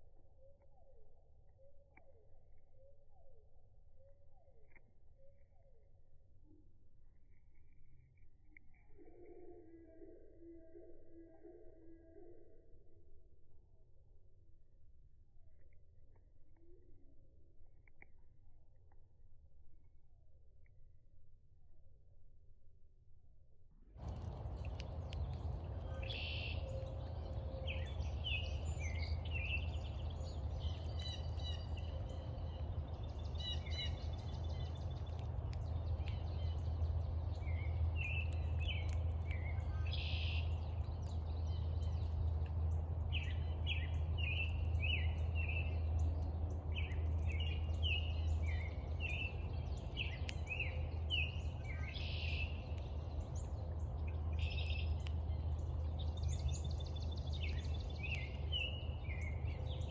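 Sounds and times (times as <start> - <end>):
low background rumble: 12.4 - 59.9
birds chirping: 24.0 - 59.9.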